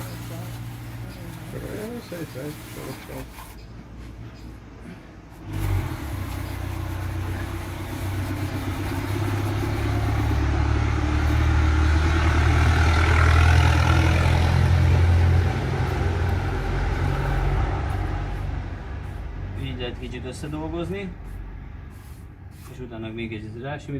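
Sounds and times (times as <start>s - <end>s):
vehicle engine droning: 4.8s - 22.7s.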